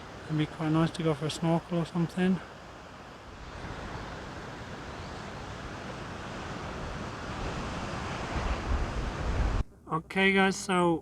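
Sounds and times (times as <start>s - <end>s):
wind on microphone: 3.3s - 9.7s.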